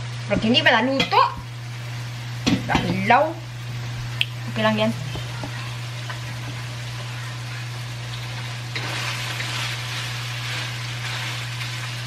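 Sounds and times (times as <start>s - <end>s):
meat sizzling in a wok: 0.0s - 12.0s
steady low hum: 0.0s - 12.0s.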